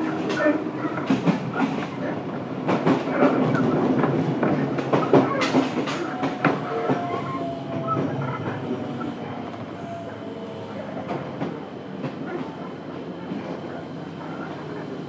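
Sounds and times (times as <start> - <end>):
wheels clacking over rail joints: 0.0 - 9.0
train running rumble: 0.0 - 15.0.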